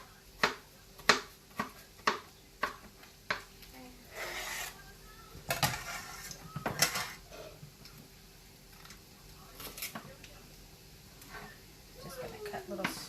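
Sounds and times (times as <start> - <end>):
pan scraping: 4.1 - 4.8, 5.5 - 7.6.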